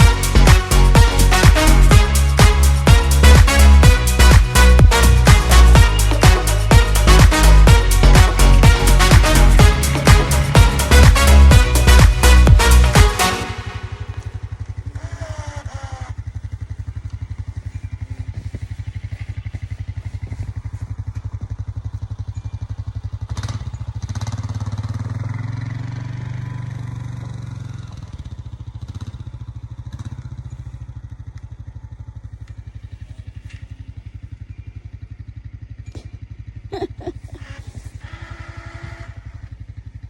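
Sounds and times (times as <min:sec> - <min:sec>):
engine running steadily: 0:00.0 - 0:25.2.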